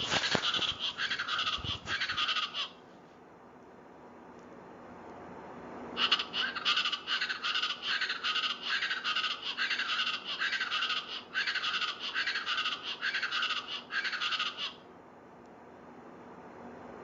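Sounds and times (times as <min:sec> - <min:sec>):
birds calling repeated notes: 0:00.0 - 0:02.8, 0:06.0 - 0:14.8.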